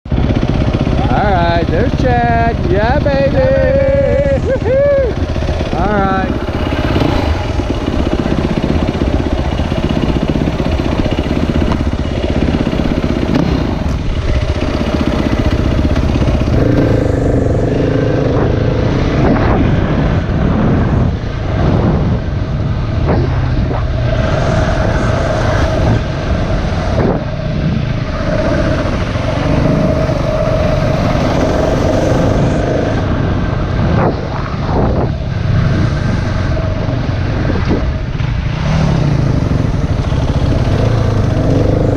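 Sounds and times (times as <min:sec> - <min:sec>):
dirt bike engine revving: 0:00.1 - 0:41.9
sharp thumps: 0:15.8 - 0:24.9.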